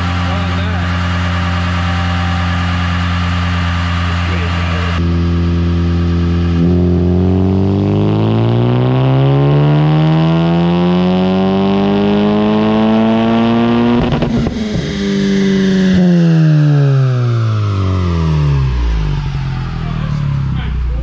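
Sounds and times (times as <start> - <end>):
car engine full-throttle pull: 0.0 - 16.6
exhaust crackle: 0.0 - 21.0.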